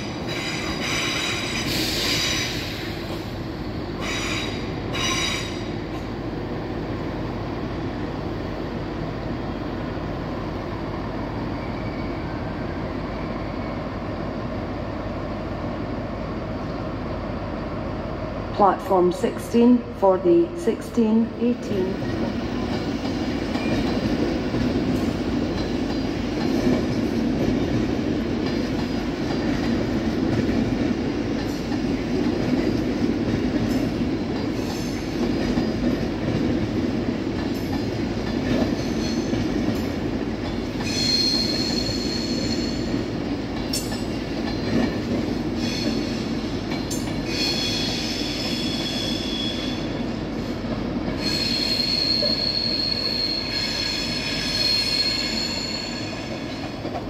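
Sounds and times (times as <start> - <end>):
train wheels rumbling on rails: 0.0 - 57.0
high-pitched wheel squeal: 40.9 - 42.8, 51.2 - 56.3.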